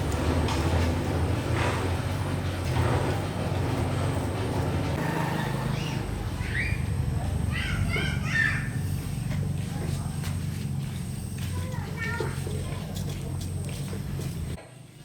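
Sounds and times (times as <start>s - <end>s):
low engine hum: 0.0s - 14.6s
short high calls: 5.0s - 9.3s.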